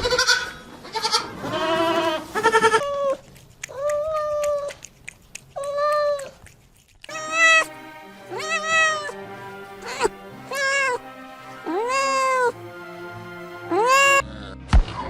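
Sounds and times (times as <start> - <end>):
cat meowing: 0.1 - 4.8, 5.5 - 9.2, 9.8 - 12.6, 13.7 - 14.2.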